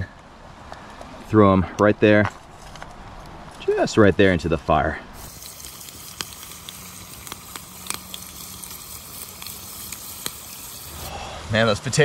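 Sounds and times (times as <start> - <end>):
potatoes sizzling in oil: 5.2 - 11.1.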